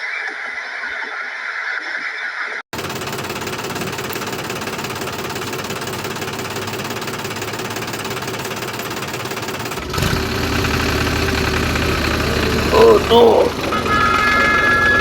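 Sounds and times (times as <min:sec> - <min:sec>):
tractor engine knocking chug: 0:02.8 - 0:15.0.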